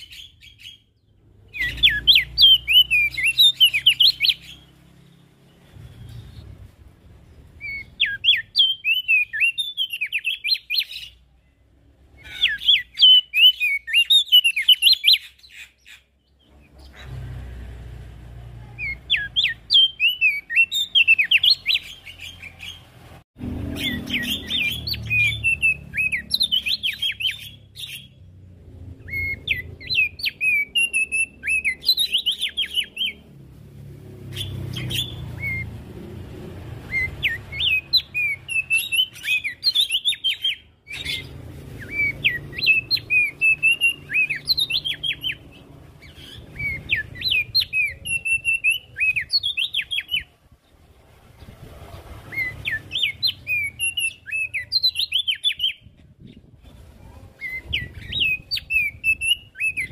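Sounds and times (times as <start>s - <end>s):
bird chattering high chirps: 0.0s - 4.7s, 12.1s - 17.1s, 29.0s - 33.2s, 36.9s - 50.2s.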